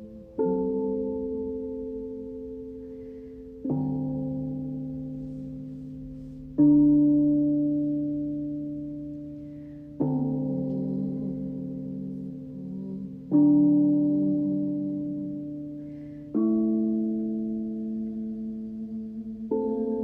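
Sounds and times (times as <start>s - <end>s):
resonant instrument notes ringing: 0.0s - 20.0s.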